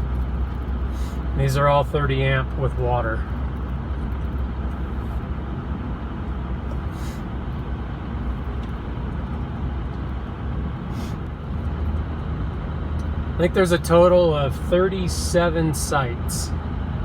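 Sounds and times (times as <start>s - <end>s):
truck engine rumble: 0.0s - 17.0s
brief hisses: 6.9s - 7.3s, 10.9s - 11.2s.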